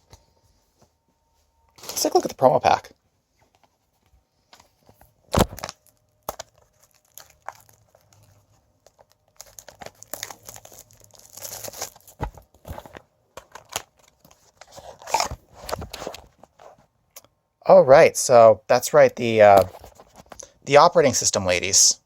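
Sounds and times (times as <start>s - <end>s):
wrapper tearing and crinkling: 5.3s - 12.2s, 13.5s - 16.2s.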